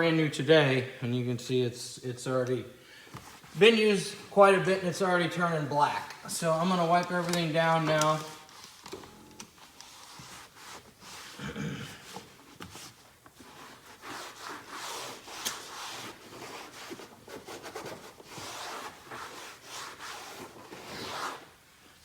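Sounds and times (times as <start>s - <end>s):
towel rubbing a panel: 9.8s - 11.4s, 12.0s - 21.5s.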